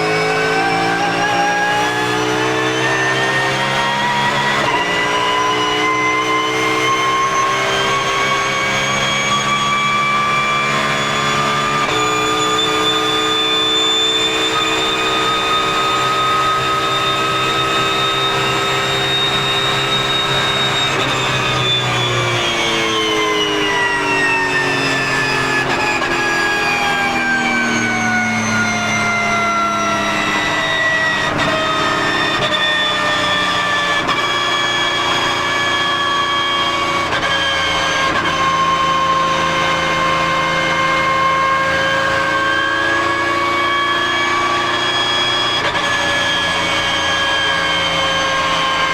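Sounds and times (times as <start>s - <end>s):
gearbox whine: 0.0s - 48.9s
race car engine: 0.0s - 48.9s.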